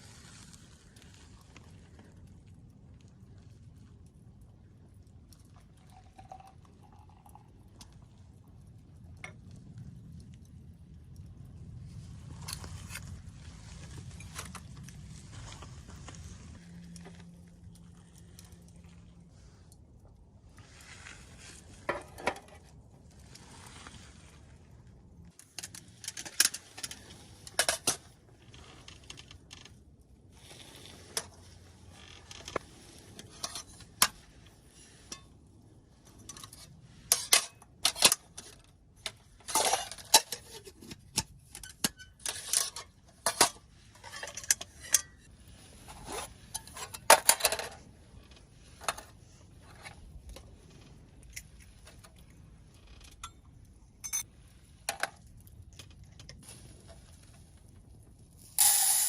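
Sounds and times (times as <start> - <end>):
metal cookware clattering: 39.5 - 40.6.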